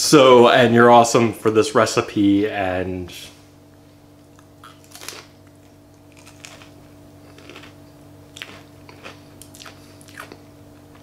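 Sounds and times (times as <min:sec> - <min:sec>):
steady low hum: 0:00.0 - 0:11.0
crunching chip chewing: 0:04.4 - 0:11.0.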